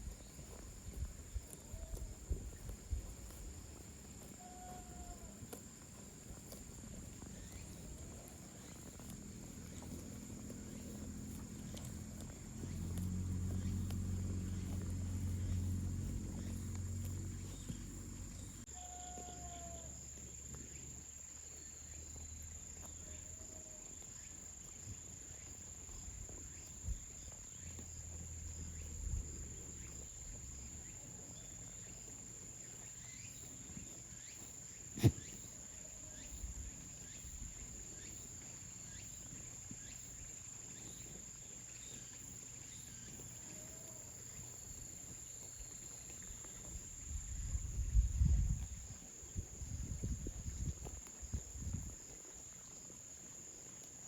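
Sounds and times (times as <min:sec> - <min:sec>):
insects droning: 0:00.0 - 0:54.0
faint short calls: 0:35.0 - 0:36.3.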